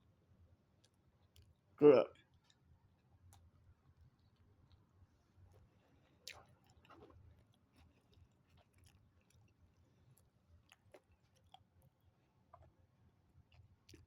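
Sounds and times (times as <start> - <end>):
faint chewing: 0.8 - 14.0
wet mouth clicks: 6.2 - 7.2.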